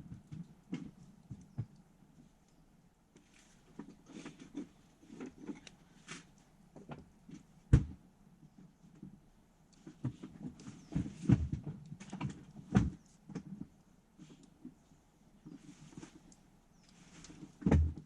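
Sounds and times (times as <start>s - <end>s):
campfire crackling: 0.2s - 11.0s.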